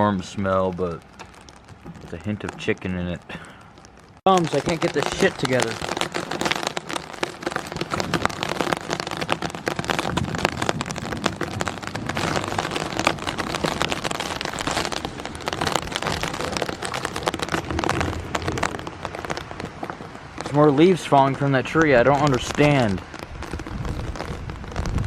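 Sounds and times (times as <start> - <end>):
raindrops ticking on surface: 0.0 - 25.0
steady rain hiss: 0.0 - 25.0.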